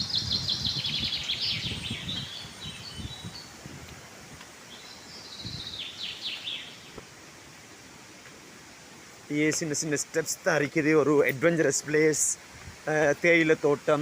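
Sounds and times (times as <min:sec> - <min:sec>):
bird chirping: 0:00.0 - 0:03.6, 0:04.6 - 0:07.0
faint outdoor background noise: 0:00.0 - 0:14.0.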